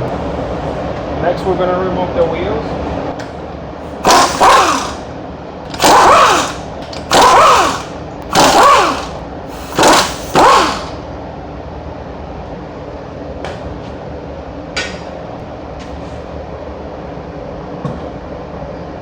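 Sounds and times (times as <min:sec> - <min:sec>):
impact wrench bursts: 0:03.9 - 0:11.0.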